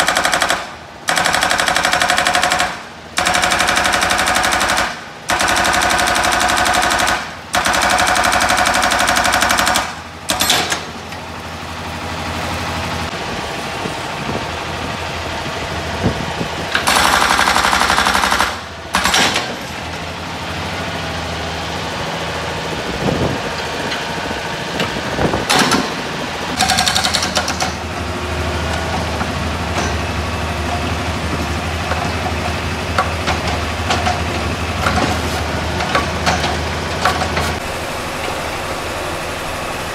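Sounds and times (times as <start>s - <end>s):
diesel engine running: 0.0s - 39.9s
hydraulic breaker hammering: 3.2s - 11.1s, 16.8s - 19.9s, 25.4s - 26.0s.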